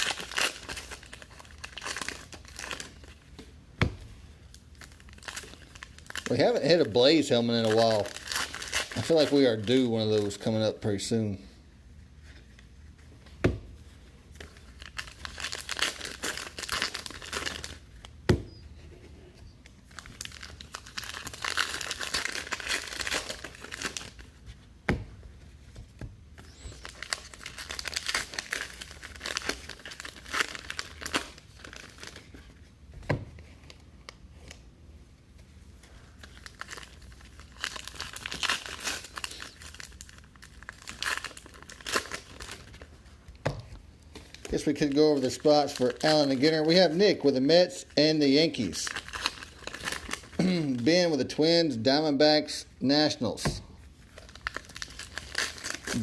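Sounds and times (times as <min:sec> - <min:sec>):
card pack wrappers tearing and crinkling: 0:00.0 - 0:03.2, 0:04.7 - 0:10.8, 0:14.4 - 0:18.6, 0:19.8 - 0:24.4, 0:26.4 - 0:32.5, 0:35.9 - 0:43.0, 0:44.0 - 0:51.9, 0:54.0 - 0:56.0.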